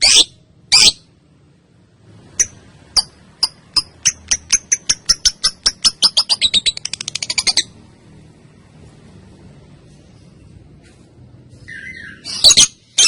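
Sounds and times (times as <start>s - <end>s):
lovebird chirping: 0.0s - 1.1s, 2.2s - 7.8s, 11.6s - 13.0s.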